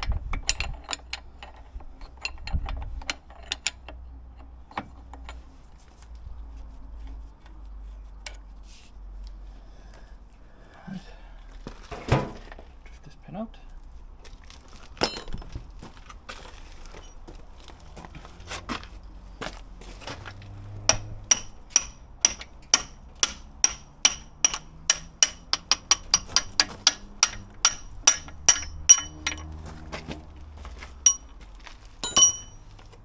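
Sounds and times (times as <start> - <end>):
hammer striking steel: 20.9 - 29.5, 31.1 - 31.3, 32.0 - 32.7.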